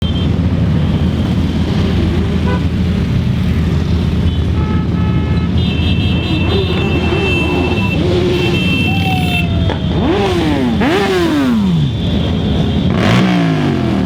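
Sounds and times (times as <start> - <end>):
motorcycle engines rumbling: 0.0 - 14.0
horn toots: 4.2 - 14.0.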